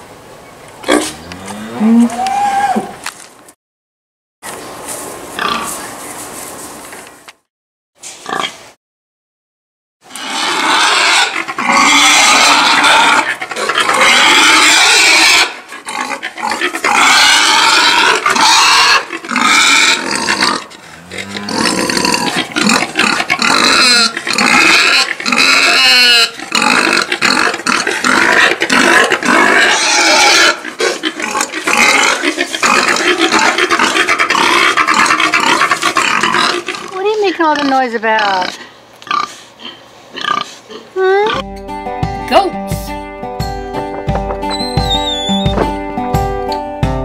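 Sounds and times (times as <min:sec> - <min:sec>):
pigs squealing: 0:10.1 - 0:41.4, 0:44.4 - 0:45.6.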